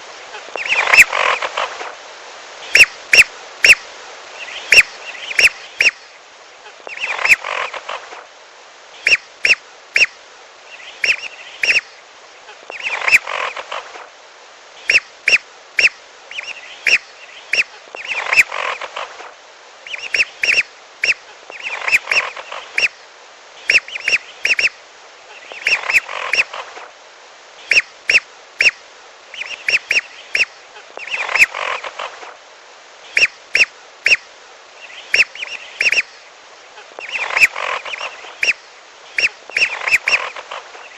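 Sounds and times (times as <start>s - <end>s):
whistling duck calls: 9.0s - 10.1s, 11.0s - 11.9s, 14.8s - 18.8s, 19.9s - 22.9s, 23.7s - 24.7s, 27.7s - 28.8s, 29.4s - 32.0s, 33.1s - 34.2s, 35.1s - 36.1s, 37.0s - 40.5s
raspy duck chatter: 36.8s - 38.6s, 39.2s - 40.9s.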